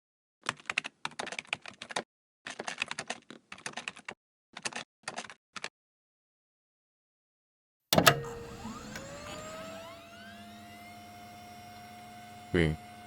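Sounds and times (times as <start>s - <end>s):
typing on a keyboard: 0.4s - 5.7s.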